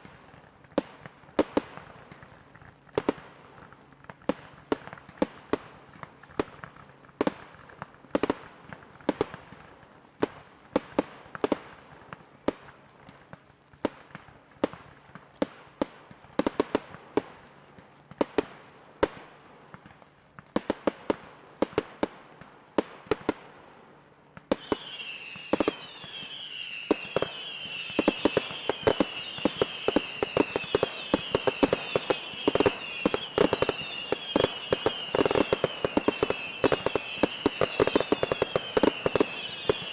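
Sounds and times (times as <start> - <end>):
fireworks bursting with sharp bangs: 0.0 - 39.9
high wavering whistle: 24.6 - 39.9.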